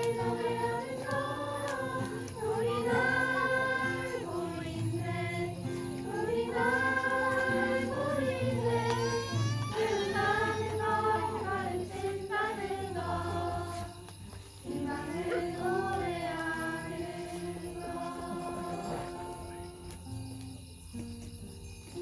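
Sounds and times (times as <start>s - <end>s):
children singing in unison: 0.0s - 14.1s, 14.7s - 19.9s.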